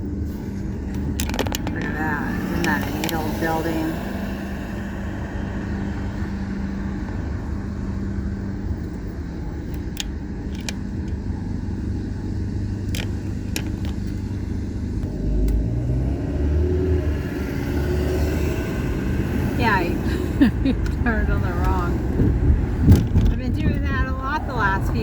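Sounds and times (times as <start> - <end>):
car engine and road rumble: 0.0 - 25.0
clicks: 0.9 - 3.5, 9.6 - 11.3, 12.9 - 14.3.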